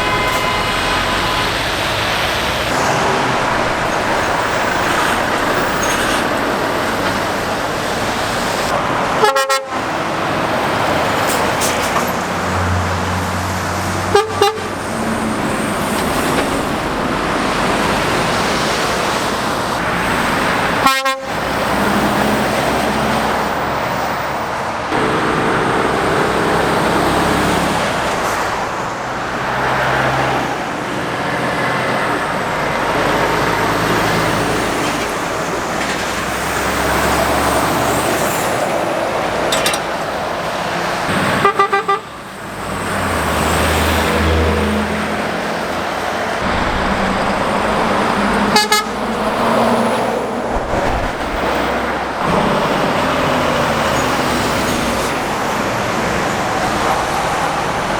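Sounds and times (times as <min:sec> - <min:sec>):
vehicle horn toot: 0:00.0 - 0:01.9, 0:09.2 - 0:09.8, 0:14.1 - 0:14.8, 0:20.8 - 0:21.4, 0:41.4 - 0:42.2, 0:48.5 - 0:49.0
heavy traffic passing: 0:00.0 - 0:57.9.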